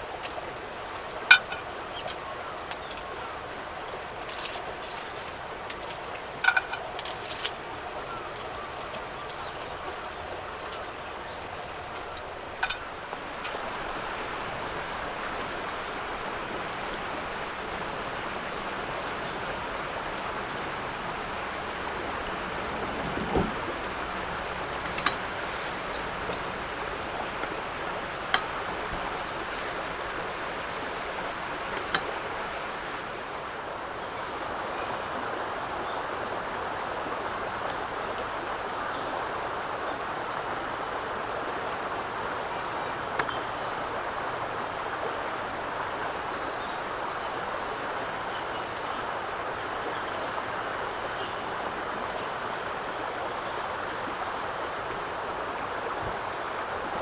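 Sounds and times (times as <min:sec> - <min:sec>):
wood popping: 0:01.2 - 0:03.1, 0:11.7 - 0:14.6, 0:22.8 - 0:32.7.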